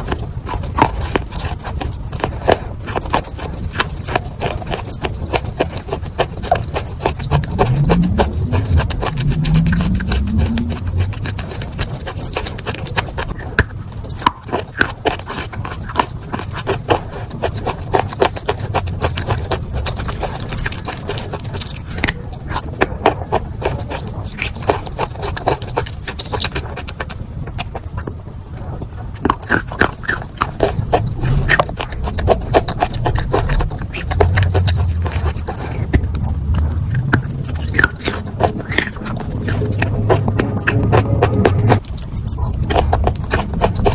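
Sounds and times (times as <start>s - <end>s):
chalk crunching while chewed: 0.0s - 43.9s
low rumble: 6.4s - 13.6s, 17.7s - 23.9s, 30.5s - 43.9s.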